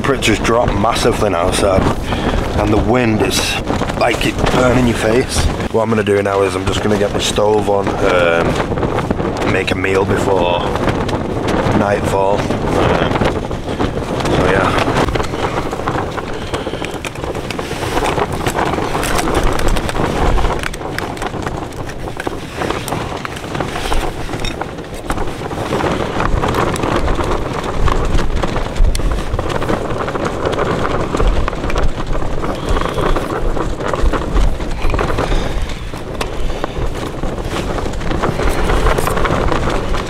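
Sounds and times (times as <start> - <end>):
strong wind on microphone: 0.0 - 40.0.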